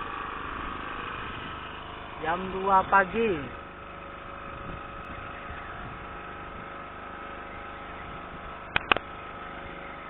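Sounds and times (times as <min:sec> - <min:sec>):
boat engine idling: 0:00.0 - 0:10.0
sharp clicks: 0:08.7 - 0:09.1.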